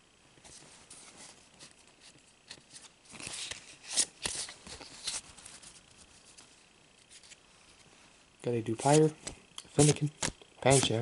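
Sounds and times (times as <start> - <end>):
cards rustling: 1.6 - 6.4, 8.7 - 11.0.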